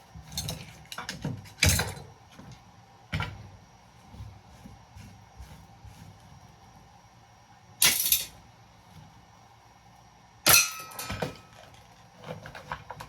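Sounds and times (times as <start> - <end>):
metal clank with ring: 10.5 - 11.5.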